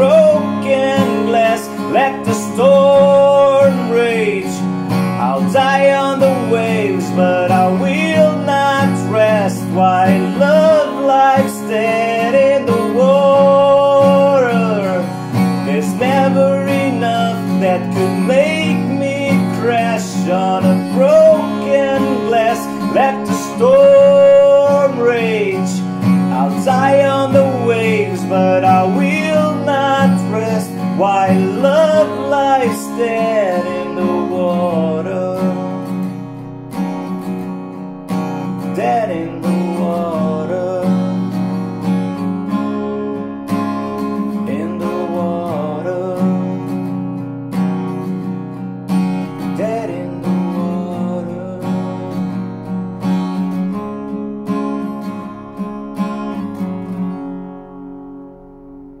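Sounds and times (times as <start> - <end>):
person singing: 0.0 - 36.1, 38.4 - 41.5, 44.1 - 46.7, 49.3 - 52.4
acoustic guitar strumming: 0.0 - 59.0.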